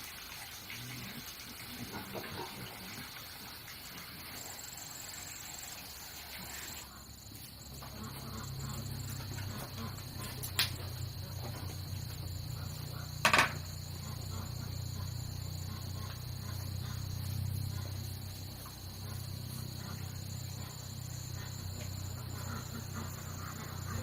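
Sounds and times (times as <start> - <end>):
insects chirring: 0.0 - 24.0
sharp knocks: 13.2 - 13.7.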